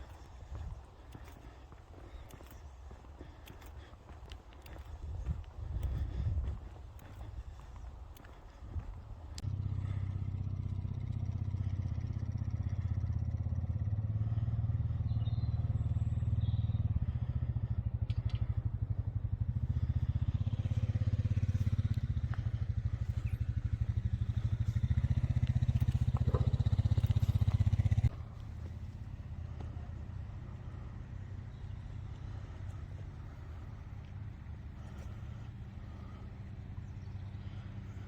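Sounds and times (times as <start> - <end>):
engine with pulsing beat: 9.4 - 31.0.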